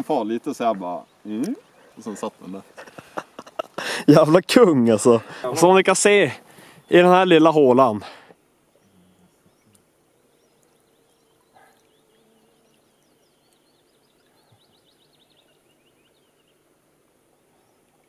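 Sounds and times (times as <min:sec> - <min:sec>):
small bird singing: 0:08.7 - 0:16.8.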